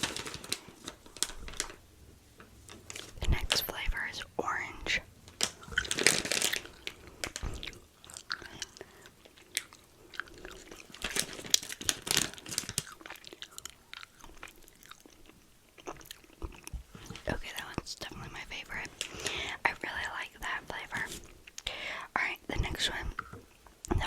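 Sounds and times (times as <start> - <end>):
crunchy snack being chewed: 5.4 - 17.3.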